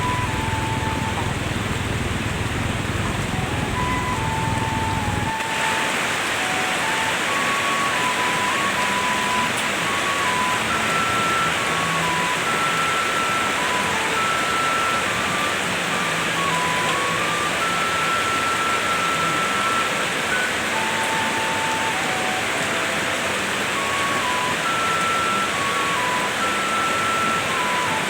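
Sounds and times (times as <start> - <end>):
low rumble: 0.0 - 5.3
heavy rain hissing: 0.0 - 28.0
slow melody of held notes: 0.0 - 28.0.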